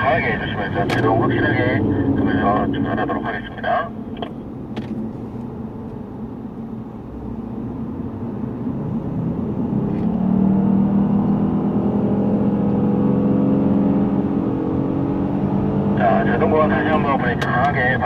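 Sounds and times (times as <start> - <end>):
car engine accelerating: 8.4 - 18.0.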